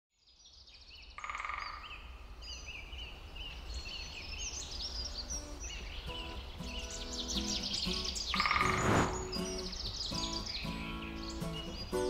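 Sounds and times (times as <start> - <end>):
birds chirping: 0.2 - 12.0.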